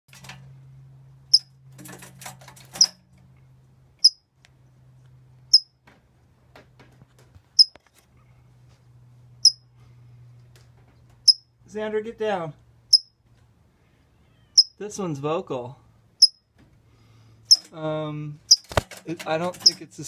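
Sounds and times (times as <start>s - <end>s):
small bird chirping: 4.0s - 4.2s, 5.5s - 5.8s, 9.4s - 9.6s, 11.3s - 11.5s, 12.9s - 13.2s, 14.1s - 14.8s
clatter of clicks: 18.5s - 19.8s.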